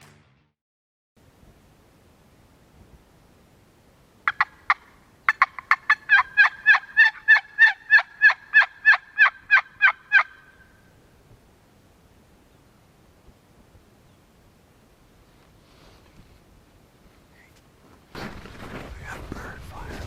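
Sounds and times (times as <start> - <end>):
turkey yelps: 4.3 - 10.8.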